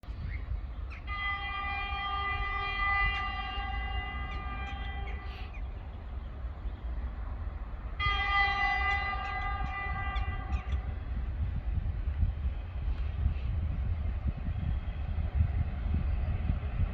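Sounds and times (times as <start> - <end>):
electric locomotive horn blasts: 1.0 - 5.6, 8.0 - 11.6.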